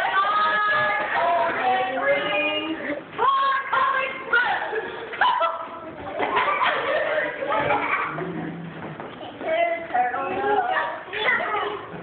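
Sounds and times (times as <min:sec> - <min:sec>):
voices singing together: 0:00.0 - 0:05.7.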